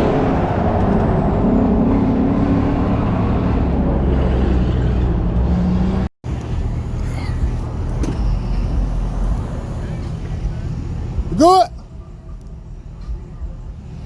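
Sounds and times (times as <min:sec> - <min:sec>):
pickup truck engine running: 0:06.2 - 0:14.0.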